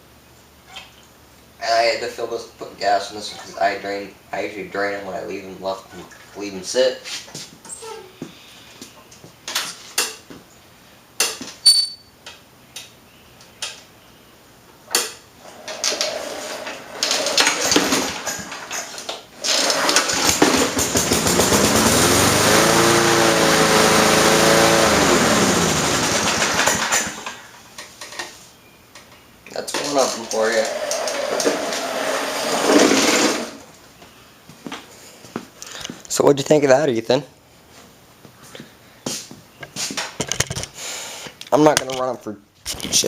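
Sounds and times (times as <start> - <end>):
pull cord clicks and pulls: 14.9 - 22.8, 24.5 - 27.4, 29.7 - 33.6
small gasoline engine running: 19.4 - 27.5, 30.5 - 33.6.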